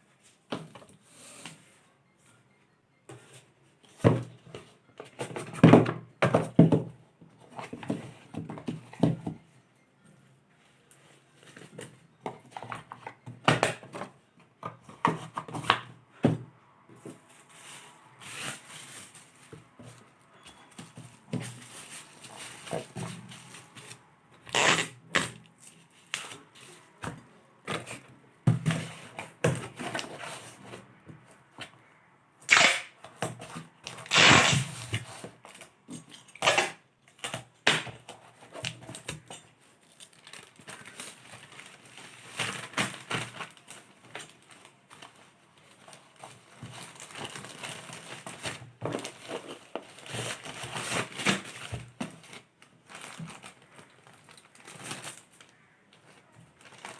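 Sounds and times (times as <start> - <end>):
plastic and paper crinkling: 10.5 - 31.4, 37.1 - 56.9.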